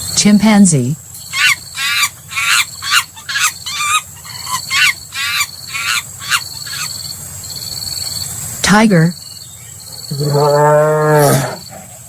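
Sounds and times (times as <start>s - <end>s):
insect drone: 0.0s - 12.0s
chimpanzee calling: 1.2s - 8.0s.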